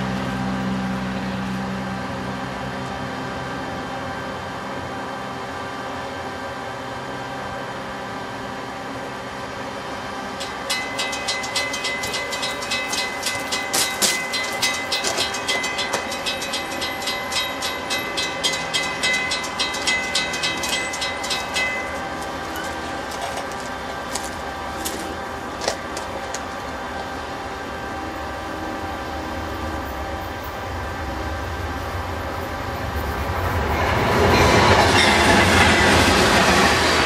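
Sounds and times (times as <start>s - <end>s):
steady hum: 0.0s - 34.2s
crossing warning bell ringing: 10.3s - 37.0s.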